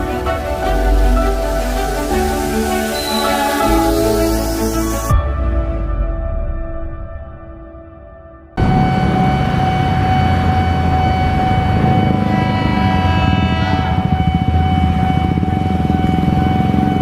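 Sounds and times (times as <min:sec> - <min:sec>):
train rumble: 0:00.0 - 0:05.1, 0:08.6 - 0:17.0
train horn: 0:02.8 - 0:04.4, 0:08.6 - 0:15.2.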